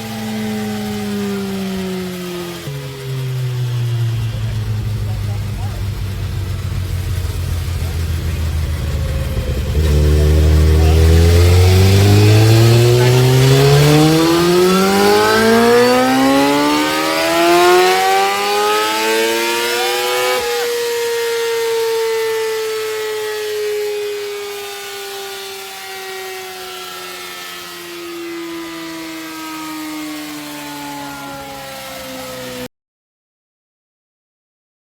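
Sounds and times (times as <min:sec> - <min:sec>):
dyno roller whine spinning down: 0:00.0 - 0:32.7
motorcycle engine revving: 0:00.0 - 0:32.7.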